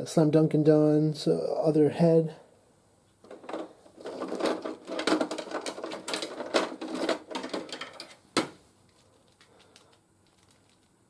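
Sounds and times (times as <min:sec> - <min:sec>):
plastic action figures clattering: 0:03.2 - 0:11.0.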